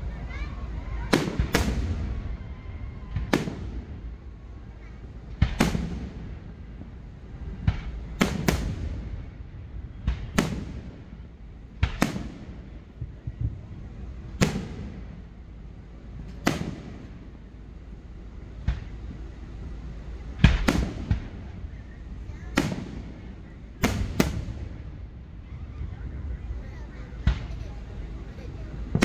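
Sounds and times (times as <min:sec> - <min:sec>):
firework shells booming: 0:01.0 - 0:02.4, 0:03.0 - 0:04.1, 0:05.3 - 0:06.5, 0:07.6 - 0:13.6, 0:14.3 - 0:15.3, 0:16.2 - 0:17.3, 0:20.3 - 0:21.8, 0:22.5 - 0:25.1.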